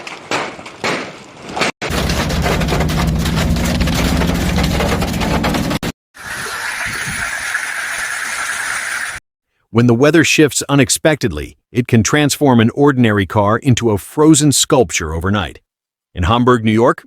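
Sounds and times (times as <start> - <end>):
vehicle engine running: 1.9 - 5.9.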